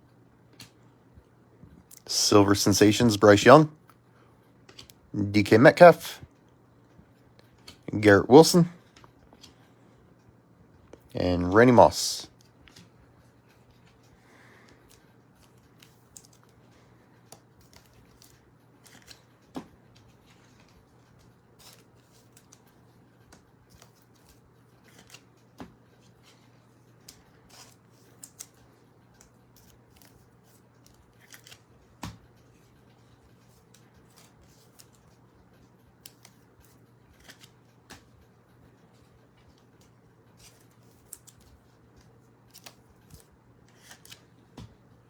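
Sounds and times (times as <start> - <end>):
faint steady hum: 0.0 - 45.0
cards clicking and snapping: 4.7 - 5.0, 17.3 - 19.7, 21.6 - 25.8, 27.0 - 32.2, 36.0 - 38.1, 39.8 - 44.7.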